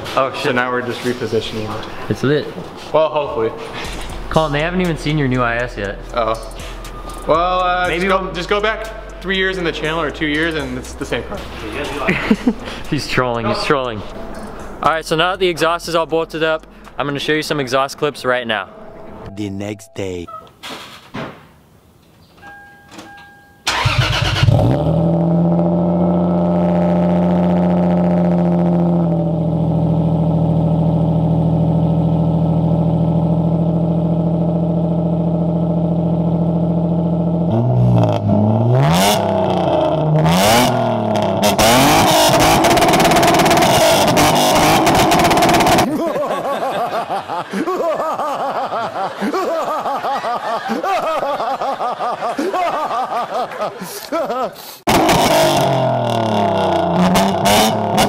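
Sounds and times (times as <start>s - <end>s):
car engine cranking and starting: 3.8s - 17.6s, 23.7s - 45.9s, 54.9s - 58.0s
engine revving: 23.7s - 45.9s, 54.9s - 58.0s.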